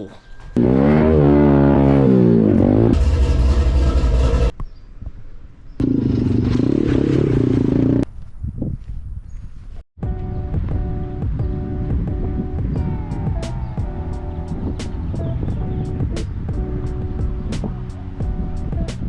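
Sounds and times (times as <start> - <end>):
dirt bike engine revving: 0.6 - 4.5, 5.8 - 8.0.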